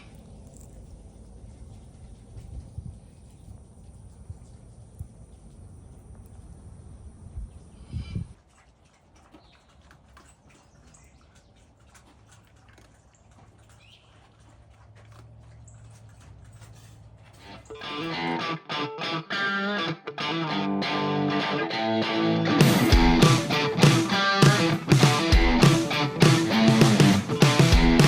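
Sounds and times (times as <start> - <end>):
steady low hum: 0.0 - 8.4
wind on microphone: 2.1 - 5.5, 7.0 - 8.4.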